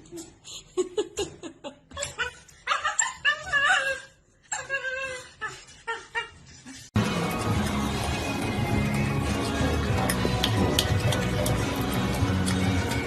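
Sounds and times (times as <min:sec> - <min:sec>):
dog wavering cries: 0:02.0 - 0:06.4.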